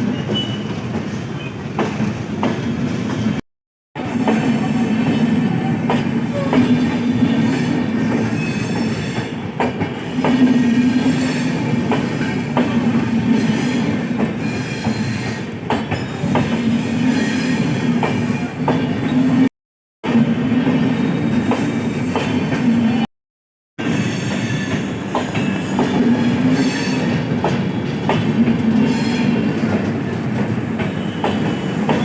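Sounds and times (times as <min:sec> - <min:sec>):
train rumbling: 0:04.0 - 0:23.1, 0:23.8 - 0:32.0
high wheel squeal: 0:07.4 - 0:09.5, 0:23.8 - 0:27.4.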